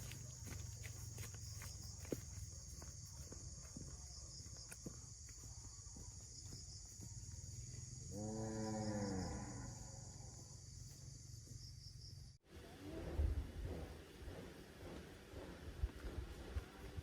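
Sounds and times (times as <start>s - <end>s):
insect chirping: 0.0s - 12.4s.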